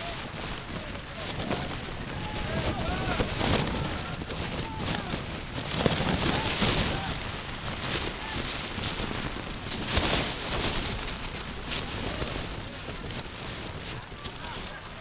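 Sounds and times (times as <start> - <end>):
distant shouts of players: 0.0 - 5.4
steady rushing noise: 0.0 - 15.0.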